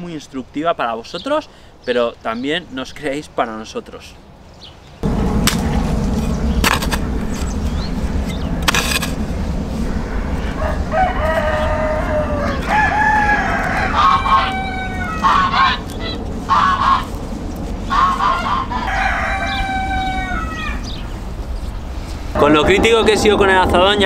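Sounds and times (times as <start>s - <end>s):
hoe blade striking soil: 5.4s - 5.8s, 6.6s - 7.5s, 8.3s - 9.2s
bird calling with falling glides: 9.8s - 17.2s, 17.9s - 21.8s.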